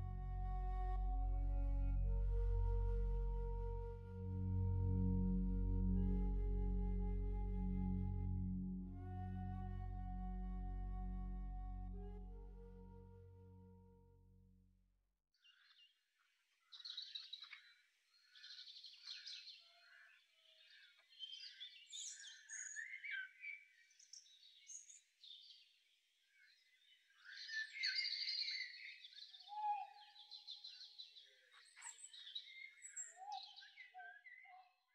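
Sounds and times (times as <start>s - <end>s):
birds chirping and trilling: 16.6s - 25.7s, 26.4s - 34.9s.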